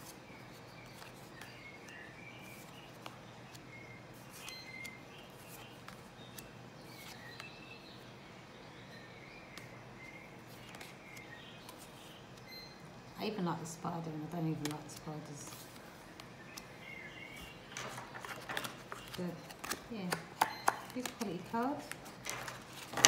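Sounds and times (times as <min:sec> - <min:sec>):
low background hum: 0:00.0 - 0:23.0
faint bird chirps: 0:00.3 - 0:13.4
cards tapping on a pile: 0:17.7 - 0:23.0.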